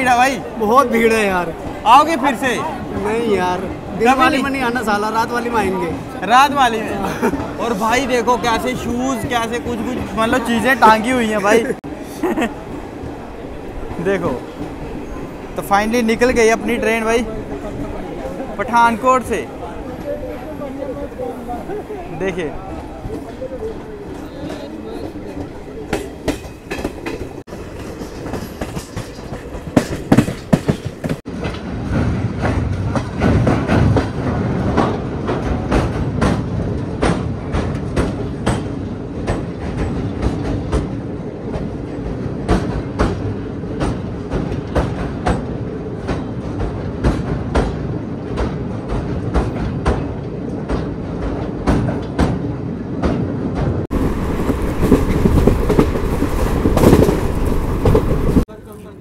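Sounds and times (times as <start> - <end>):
train rumble: 0.0 - 58.7
train wheels clacking over rail joints: 23.0 - 58.5.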